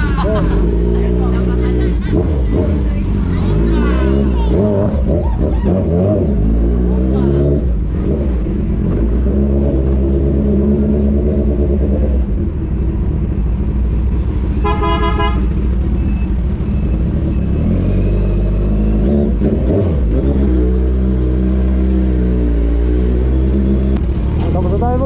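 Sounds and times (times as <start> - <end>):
vehicle horn toot: 14.6 - 15.6.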